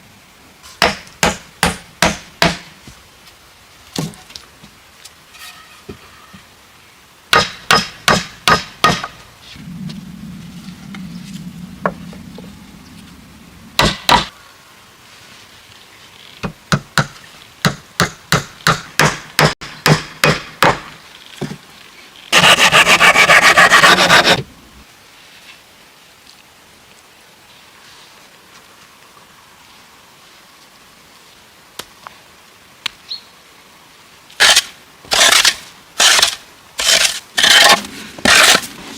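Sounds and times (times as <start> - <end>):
hammering on wood: 0.8 - 2.7, 7.3 - 9.2, 13.8 - 14.3, 16.7 - 20.9.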